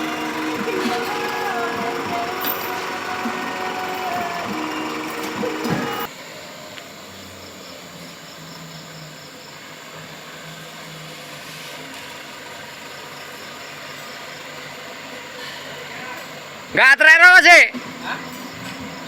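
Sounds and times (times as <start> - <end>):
diesel engine idling: 0.0 - 6.1
insects chirping: 0.0 - 19.0.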